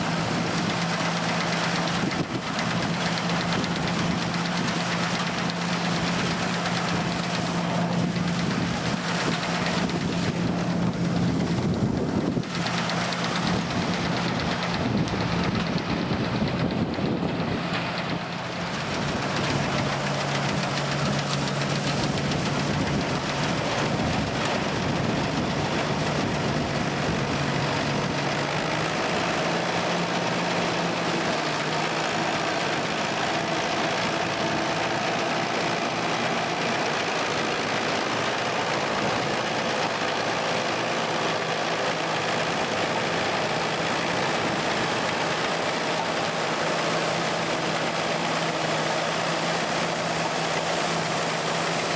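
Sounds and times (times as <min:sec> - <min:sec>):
farm machine engine running: 0:00.0 - 0:51.9.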